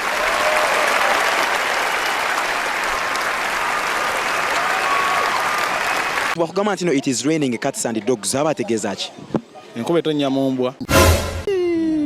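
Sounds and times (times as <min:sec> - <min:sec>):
crowd clapping: 0:00.0 - 0:06.4.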